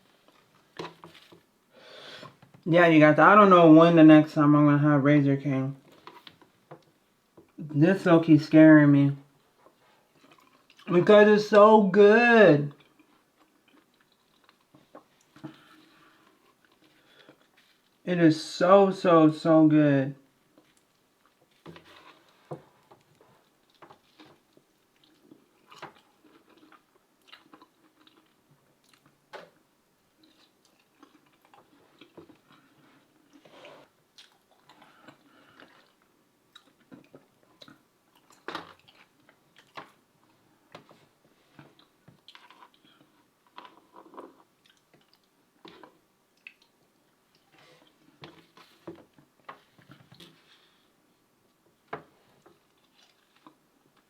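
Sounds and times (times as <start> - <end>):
chewing and biting: 23.1 - 29.1, 30.2 - 33.5.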